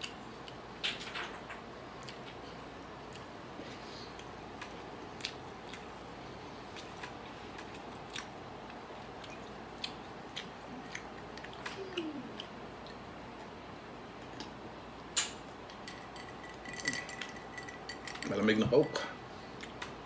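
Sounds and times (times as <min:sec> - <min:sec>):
person chewing food: 0:02.0 - 0:13.1, 0:19.4 - 0:20.0.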